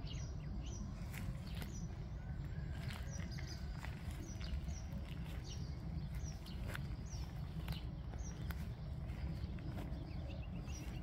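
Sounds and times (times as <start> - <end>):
low rumble: 0.0 - 11.0
small bird chirping: 0.0 - 11.0.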